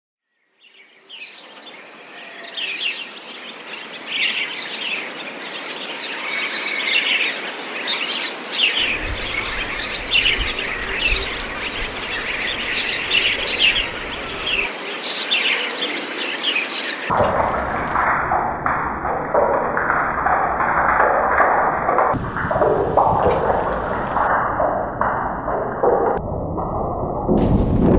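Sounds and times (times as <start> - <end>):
small birds chirping: 0.6 - 18.1, 22.2 - 24.3
low rumble: 8.8 - 14.7, 17.1 - 27.9
steady hiss: 22.2 - 24.3.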